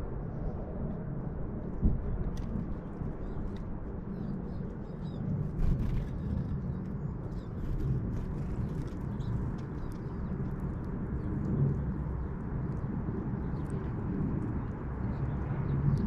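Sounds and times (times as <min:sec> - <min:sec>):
steady low rumble: 0:00.0 - 0:16.0
small birds chirping: 0:04.1 - 0:12.4.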